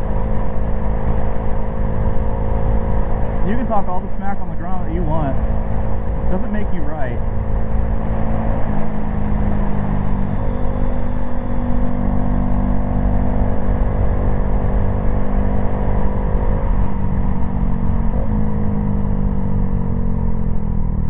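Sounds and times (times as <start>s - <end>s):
wind rumble on microphone: 0.0s - 15.4s
motorcycle engine running: 0.0s - 21.0s.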